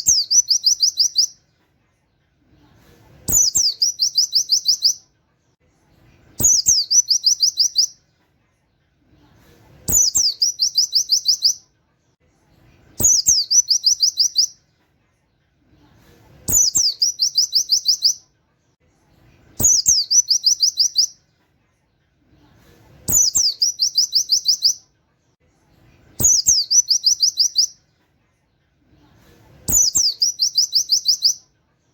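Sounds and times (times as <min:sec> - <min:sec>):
bird singing whistles and notes: 0:00.0 - 0:01.4, 0:03.3 - 0:05.0, 0:06.4 - 0:08.0, 0:09.9 - 0:11.6, 0:13.0 - 0:14.6, 0:16.5 - 0:18.2, 0:19.6 - 0:21.2, 0:23.1 - 0:24.8, 0:26.2 - 0:27.8, 0:29.7 - 0:31.4.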